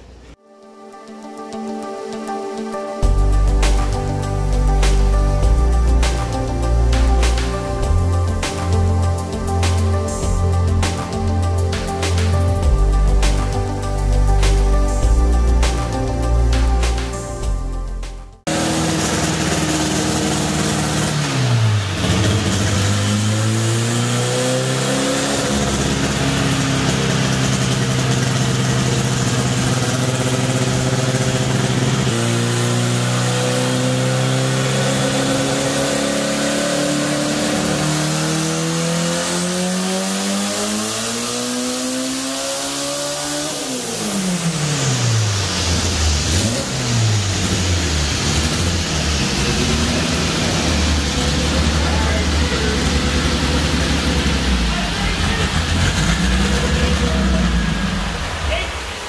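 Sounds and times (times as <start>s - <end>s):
turbocharged car engine revving: 18.5s - 59.0s.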